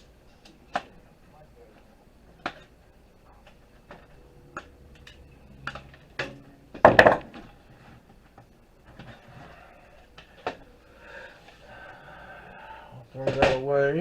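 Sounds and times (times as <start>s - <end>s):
clicks and knocks of parts: 3.4s - 7.6s.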